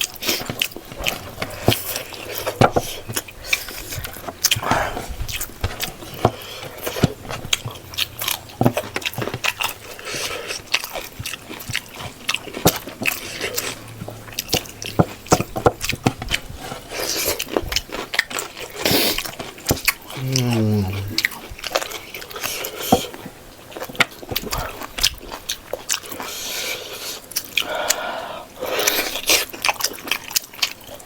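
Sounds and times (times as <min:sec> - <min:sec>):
person chewing and lip-smacking: 0:00.0 - 0:23.1, 0:23.8 - 0:31.0
wet mouth clicks: 0:20.2 - 0:21.4.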